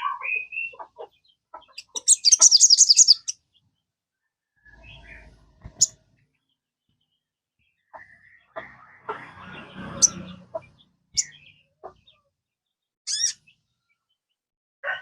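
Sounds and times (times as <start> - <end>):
sunbird singing: 0.0 - 3.8, 13.1 - 14.1.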